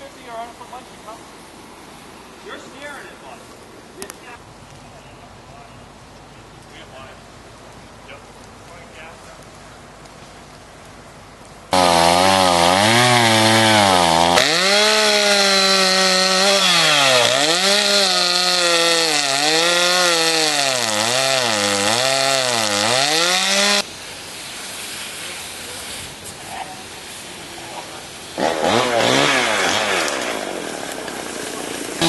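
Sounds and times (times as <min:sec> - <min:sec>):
chainsaw cutting wood: 0:11.7 - 0:23.9, 0:28.4 - 0:32.0.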